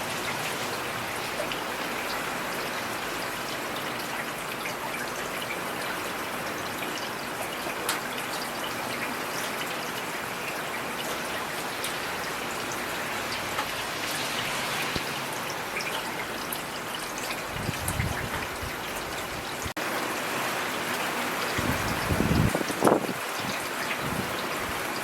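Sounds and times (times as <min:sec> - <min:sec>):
rain drops tapping: 0:06.4 - 0:20.2, 0:20.8 - 0:25.0.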